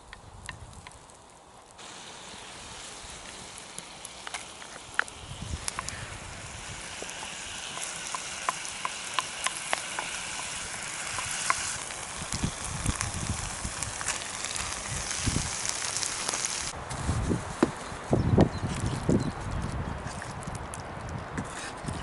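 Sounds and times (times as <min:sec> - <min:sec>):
food sizzling and popping in oil: 0:01.8 - 0:16.8.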